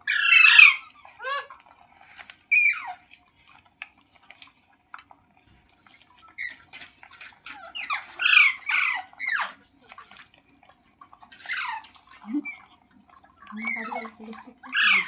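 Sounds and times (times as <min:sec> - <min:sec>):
parrot squawking: 0:00.0 - 0:01.6, 0:02.5 - 0:03.0, 0:07.4 - 0:09.6, 0:11.4 - 0:12.7, 0:13.6 - 0:15.0.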